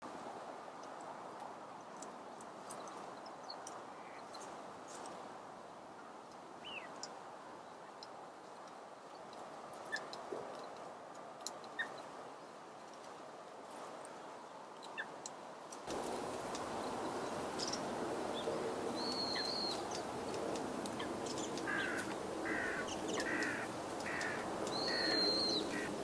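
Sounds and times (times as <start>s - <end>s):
outdoor background noise: 0.0s - 26.0s
lower bird calls: 16.0s - 20.1s, 20.9s - 26.0s.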